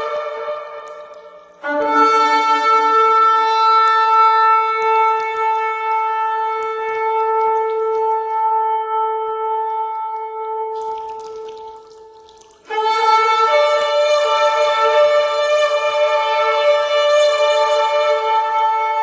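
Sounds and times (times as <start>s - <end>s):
shofar blast: 0.0s - 9.0s.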